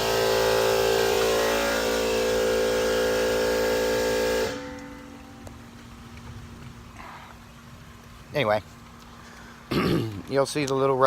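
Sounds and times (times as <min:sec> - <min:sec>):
air compressor humming: 0:00.0 - 0:07.9.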